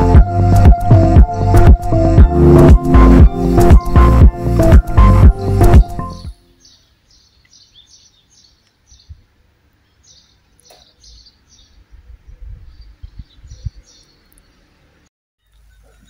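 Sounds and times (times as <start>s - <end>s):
small birds chirping: 3.2s - 16.0s.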